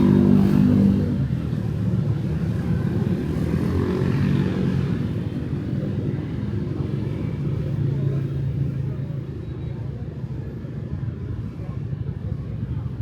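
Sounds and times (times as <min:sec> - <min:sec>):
motorbike and car engines passing: 0:00.0 - 0:06.2.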